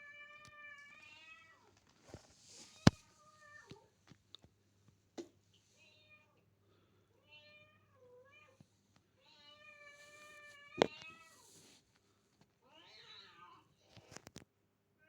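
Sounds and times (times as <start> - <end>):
cats meowing: 9.2 - 11.6.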